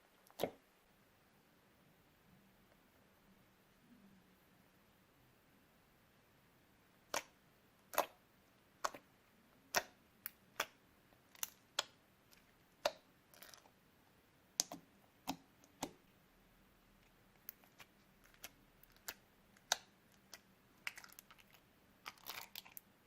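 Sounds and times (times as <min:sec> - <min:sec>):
slime clicking and popping: 0:07.1 - 0:08.2, 0:09.7 - 0:13.7, 0:14.6 - 0:16.0, 0:17.4 - 0:22.8.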